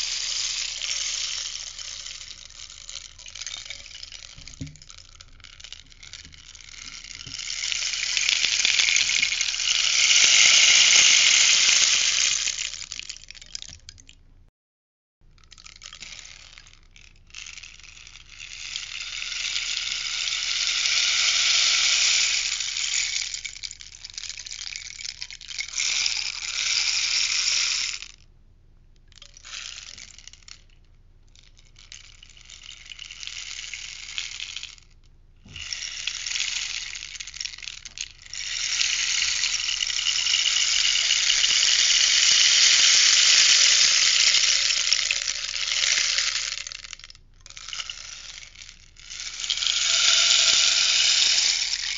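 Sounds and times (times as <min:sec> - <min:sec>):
rainstick rattling cascade: 0:00.0 - 0:14.2, 0:15.3 - 0:28.2, 0:29.1 - 0:30.8, 0:31.4 - 0:51.9.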